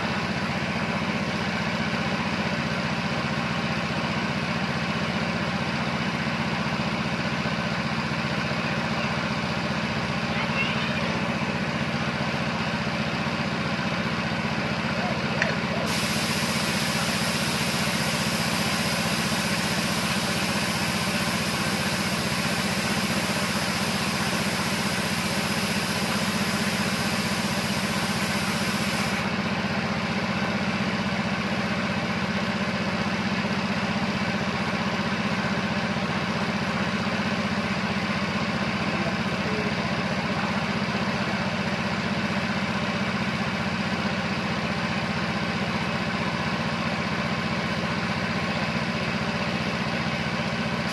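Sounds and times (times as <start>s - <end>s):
air compressor motor humming: 6.0s - 30.3s, 47.7s - 50.9s
high hiss: 15.9s - 29.2s.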